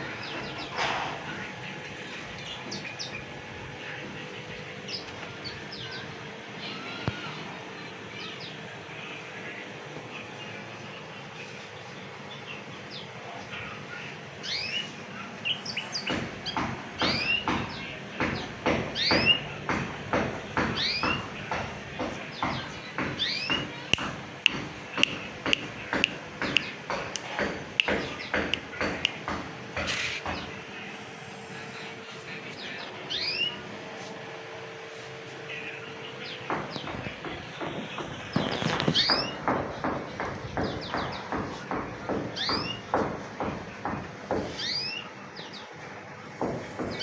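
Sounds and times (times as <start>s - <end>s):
canary chirping: 38.3s - 41.4s.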